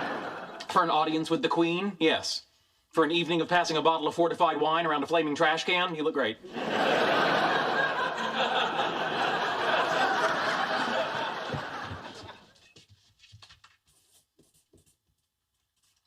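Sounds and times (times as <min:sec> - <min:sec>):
studio audience laughing: 0:00.0 - 0:00.7, 0:06.4 - 0:12.6.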